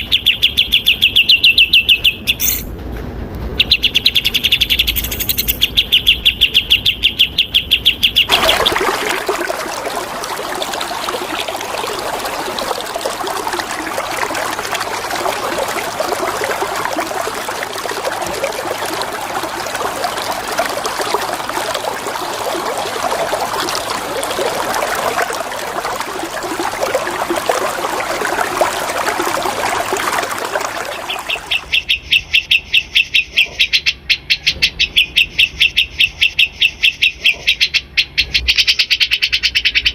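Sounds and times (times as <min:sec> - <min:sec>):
bird chirping rapidly: 0:00.0 - 0:02.7, 0:03.6 - 0:08.3
rushing flowing water: 0:08.3 - 0:31.8.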